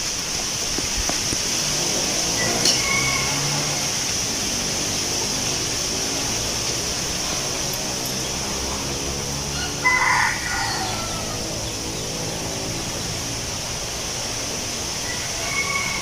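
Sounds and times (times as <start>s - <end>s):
constant high hiss: 0.0s - 16.0s
wind in trees: 0.0s - 16.0s
rooster crowing: 2.2s - 4.2s, 9.4s - 11.8s, 15.0s - 16.0s.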